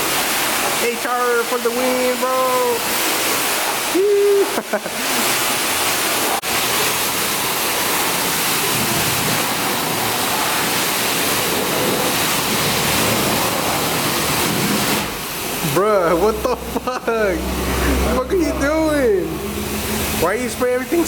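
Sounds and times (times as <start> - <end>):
pressure washer spraying water: 0.0 - 21.0.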